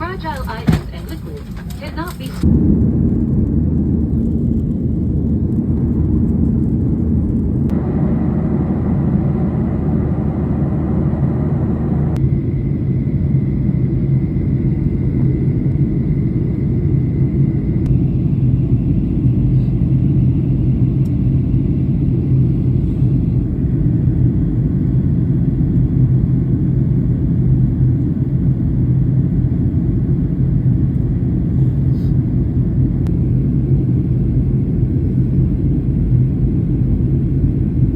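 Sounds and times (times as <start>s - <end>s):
faint steady whine: 0.0s - 3.6s
airplane engines and airflow rumble: 0.0s - 37.9s.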